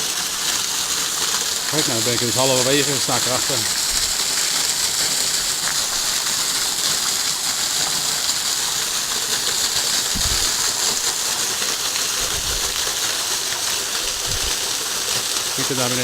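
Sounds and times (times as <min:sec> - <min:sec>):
waterfall falling onto rocks: 0:00.0 - 0:16.0
low thumps: 0:10.1 - 0:10.6.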